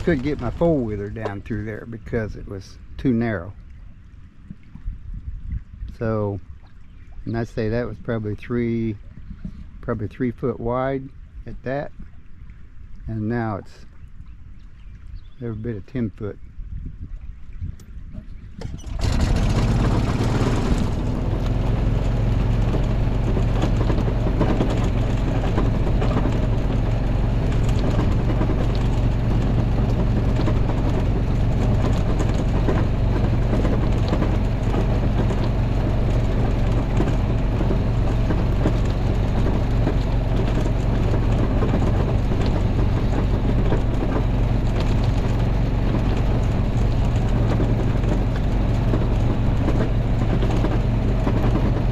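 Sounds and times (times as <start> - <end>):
off-road vehicle engine running: 0.0 - 3.4, 18.3 - 51.9.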